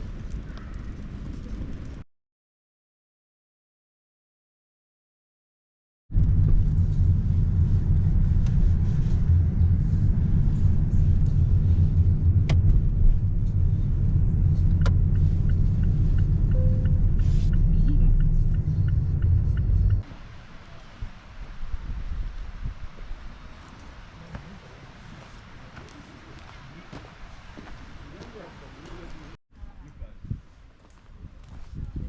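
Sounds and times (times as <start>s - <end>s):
vehicle engine rumble: 6.1s - 30.4s.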